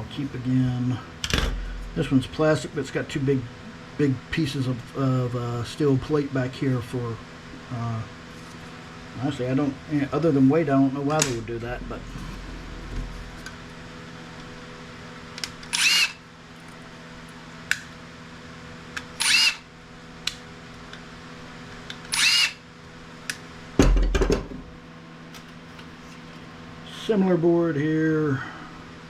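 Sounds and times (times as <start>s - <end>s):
cordless drill running: 15.7s - 16.2s, 19.2s - 19.7s, 22.1s - 22.6s.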